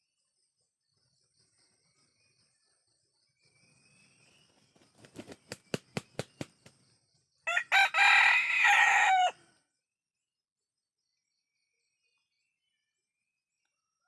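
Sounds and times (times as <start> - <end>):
rooster crowing: 7.4 - 9.6.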